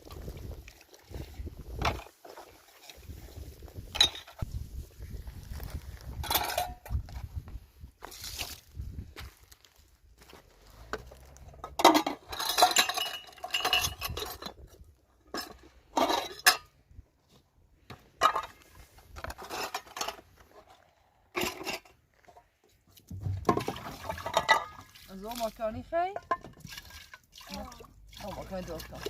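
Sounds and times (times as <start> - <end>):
pots and dishes clattering: 6.2 - 6.9, 11.6 - 14.6, 15.3 - 16.7, 21.4 - 22.0, 23.5 - 24.9.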